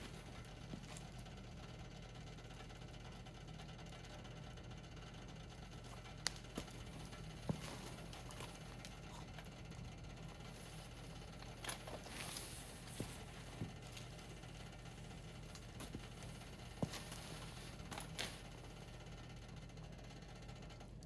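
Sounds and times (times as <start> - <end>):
wood fire crackling: 0.0 - 19.1.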